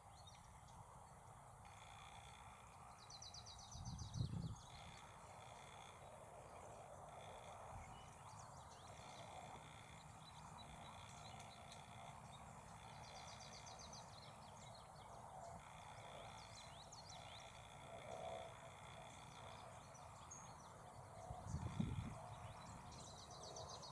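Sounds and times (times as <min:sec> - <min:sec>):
small birds chirping: 0:06.0 - 0:23.9.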